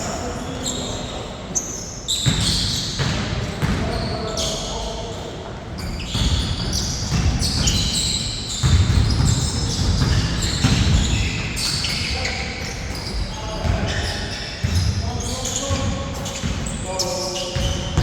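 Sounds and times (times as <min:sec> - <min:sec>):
shoe squeaks: 0:00.0 - 0:18.0
basketball bouncing on court: 0:02.2 - 0:04.0, 0:06.0 - 0:12.2, 0:17.6 - 0:18.0.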